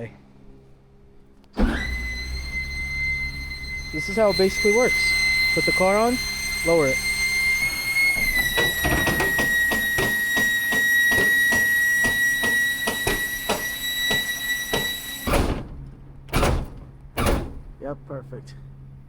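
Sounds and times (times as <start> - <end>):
hydraulic lift whine: 1.5 - 17.8.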